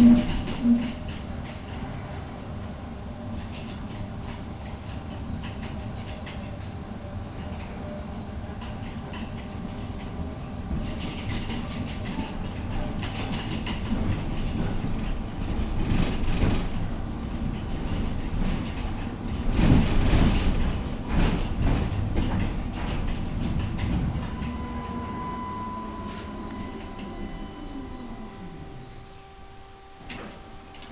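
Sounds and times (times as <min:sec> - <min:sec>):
tram wheel-on-rail rumble: 0:00.0 - 0:30.9
electrical whine: 0:23.8 - 0:30.9
tone falling in pitch: 0:24.2 - 0:29.8.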